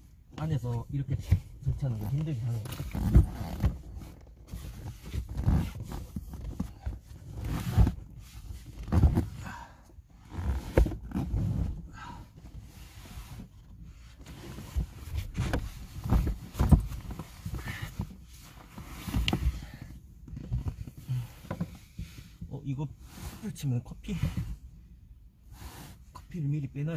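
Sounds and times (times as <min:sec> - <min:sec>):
camping gear bumping and rustling: 0:01.2 - 0:12.7, 0:13.4 - 0:22.4.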